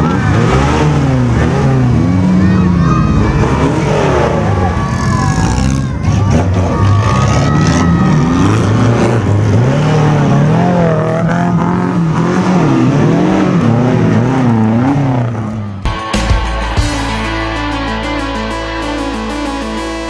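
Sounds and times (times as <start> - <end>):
off-road engines revving: 0.0 - 15.8.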